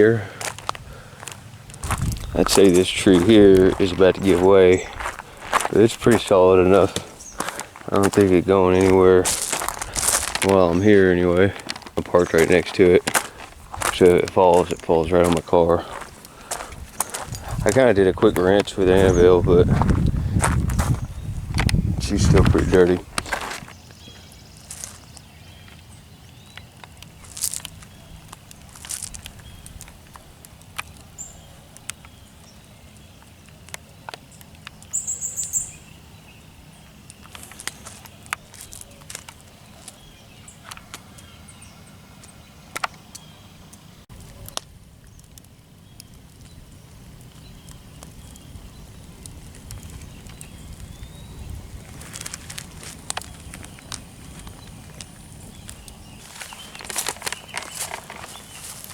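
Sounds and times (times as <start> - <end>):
steady low rumble: 0.0 - 23.7
high bird chirps: 34.8 - 39.0.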